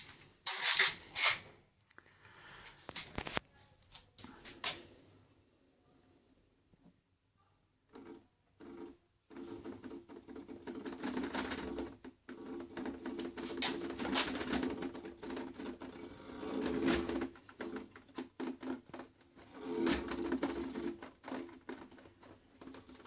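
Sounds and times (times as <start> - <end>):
clattering rattle: 8.0 - 23.0
washing machine motor humming: 19.4 - 21.9.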